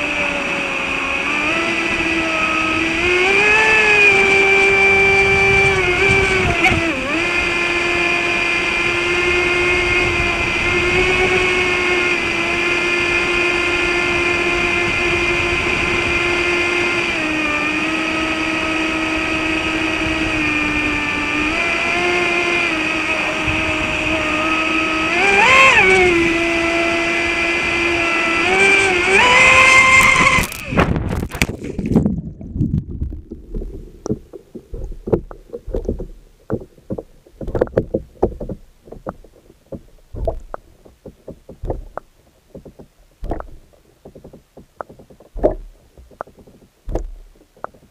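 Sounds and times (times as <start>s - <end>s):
electric boat motor whining: 0.0s - 31.5s
water splashing: 0.0s - 47.9s.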